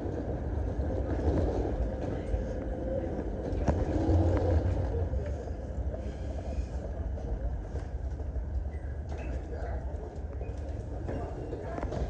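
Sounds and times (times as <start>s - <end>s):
low vehicle rumble: 0.0s - 9.1s.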